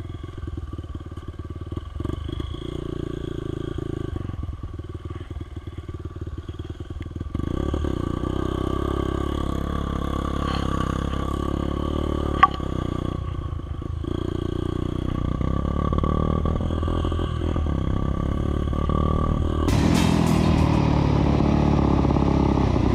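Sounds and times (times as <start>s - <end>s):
dirt bike engine revving: 7.3s - 13.1s.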